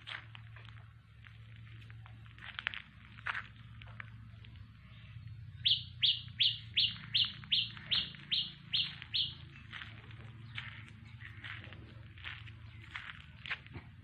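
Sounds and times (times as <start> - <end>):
bird chirping: 4.3 - 13.5.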